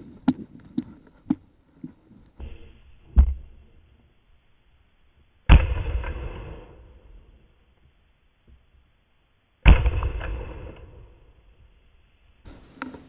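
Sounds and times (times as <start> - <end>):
shotgun shots: 5.5 - 7.4, 9.6 - 11.3.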